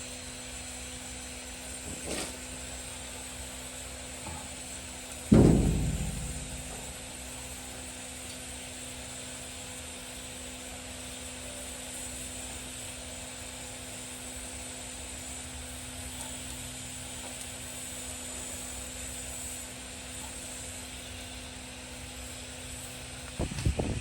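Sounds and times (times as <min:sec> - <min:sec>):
constant hiss: 0:04.1 - 0:07.5
machine hum: 0:05.3 - 0:07.4.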